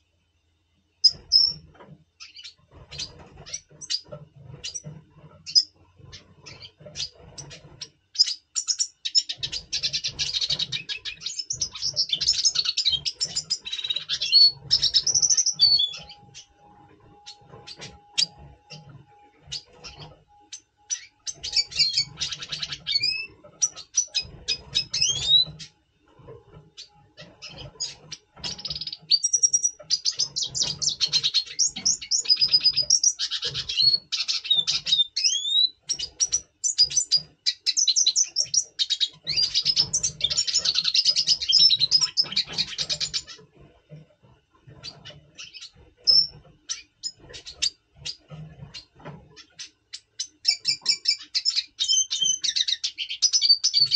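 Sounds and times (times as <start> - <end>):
bird chips: 1.0 - 25.7, 26.6 - 43.6
bird twittering song: 1.0 - 44.0, 44.6 - 53.9.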